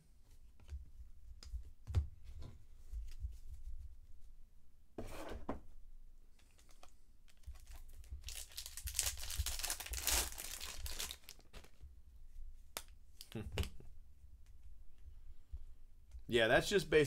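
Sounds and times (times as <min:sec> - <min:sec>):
foil wrapper tearing and crinkling: 0:07.3 - 0:11.8.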